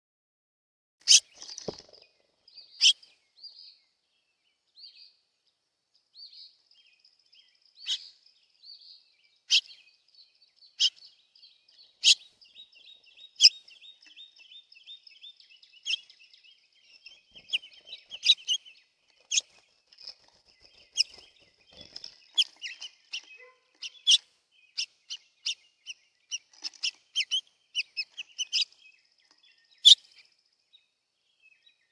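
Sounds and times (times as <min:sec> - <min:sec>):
small birds chirping and twittering: 0:01.0 - 0:31.9.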